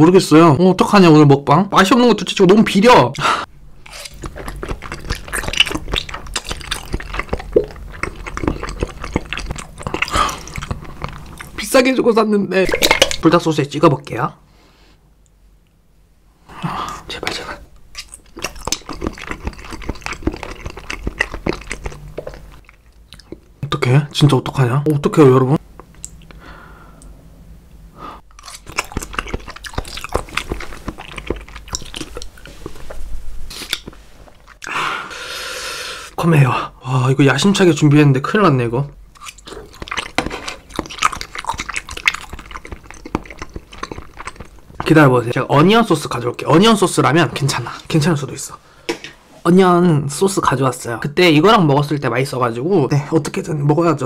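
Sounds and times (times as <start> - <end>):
wet chewing and mouth smacking: 3.2 - 11.6, 17.3 - 23.6, 25.8 - 26.4, 28.3 - 34.7, 39.1 - 48.1.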